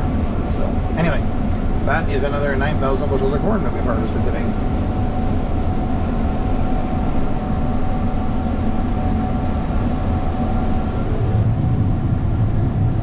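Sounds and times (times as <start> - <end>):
farm machinery drone: 0.0 - 13.0
steady whine: 0.0 - 13.0.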